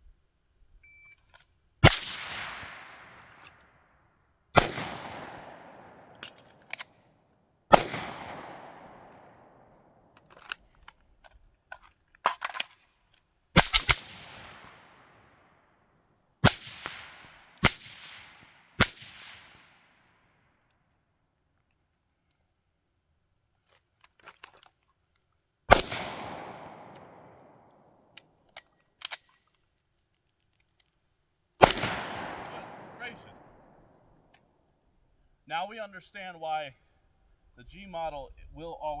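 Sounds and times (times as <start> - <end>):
gunshots: 1.8 - 3.5, 4.6 - 6.3, 7.7 - 9.4, 13.6 - 15.0, 16.4 - 19.6, 25.7 - 27.6, 31.6 - 33.8.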